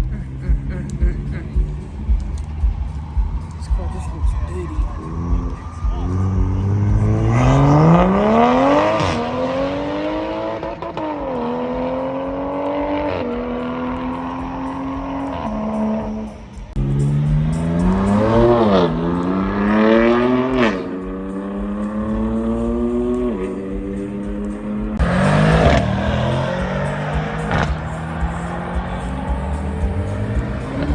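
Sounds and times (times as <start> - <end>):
car engine revving: 0.0 - 30.9.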